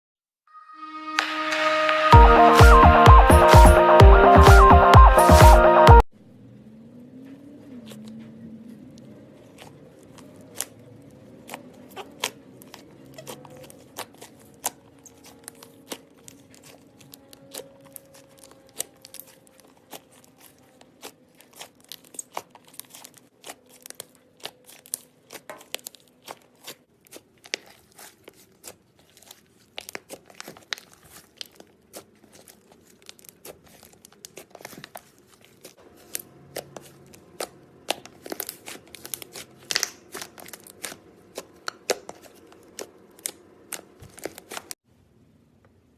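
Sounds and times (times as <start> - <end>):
slime squished by hand: 9.0 - 44.8.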